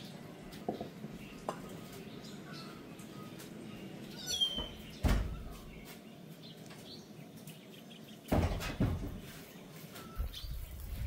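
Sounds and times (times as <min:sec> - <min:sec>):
dull knocks: 0:08.3 - 0:09.3.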